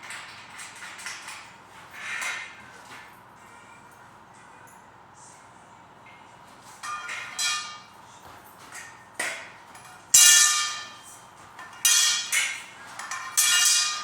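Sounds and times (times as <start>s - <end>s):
metal bed frame parts clanking: 6.8s - 8.0s, 8.6s - 14.0s.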